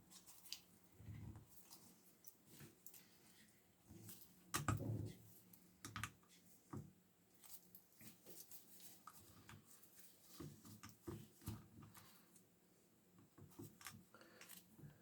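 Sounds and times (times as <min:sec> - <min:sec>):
small clicks and taps of parts: 0:04.5 - 0:04.9, 0:05.8 - 0:07.6, 0:10.4 - 0:12.2, 0:13.2 - 0:14.7.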